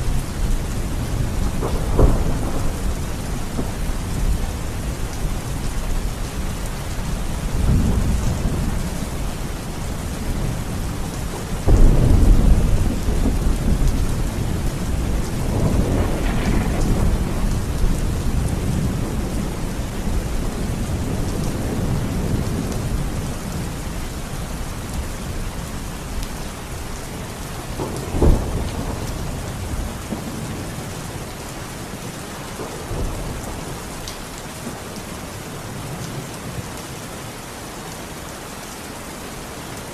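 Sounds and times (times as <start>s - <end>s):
rolling thunder: 0.0s - 26.3s, 27.4s - 31.2s
steady rain: 0.0s - 39.9s
sharp thunder crack: 1.5s - 3.8s, 11.7s - 19.4s.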